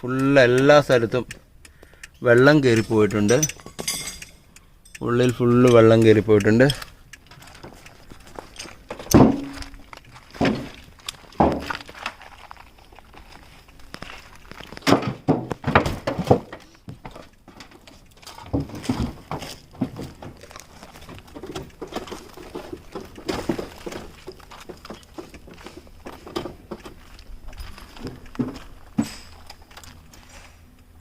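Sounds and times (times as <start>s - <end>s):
light clattering: 2.2s - 13.0s
objects knocking and thudding: 8.6s - 12.2s, 14.5s - 27.0s, 27.8s - 29.5s.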